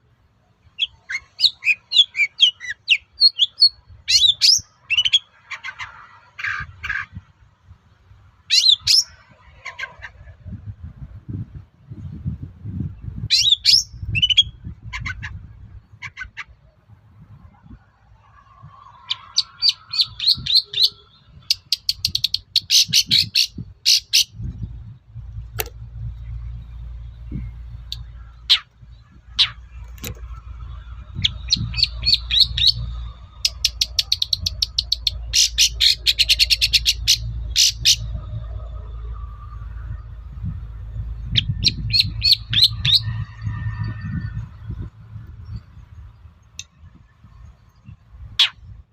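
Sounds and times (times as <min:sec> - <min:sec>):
bird chattering trills: 0:31.2 - 0:38.2, 0:48.4 - 0:48.7.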